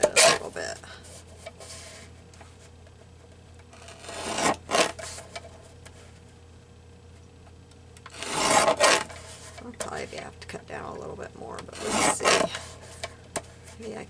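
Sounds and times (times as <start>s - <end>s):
paper being cut: 8.1s - 9.2s, 11.7s - 12.7s.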